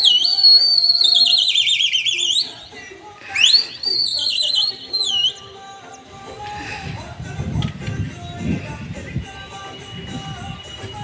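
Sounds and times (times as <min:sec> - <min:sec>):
loud warbling whistles: 0:00.0 - 0:05.5.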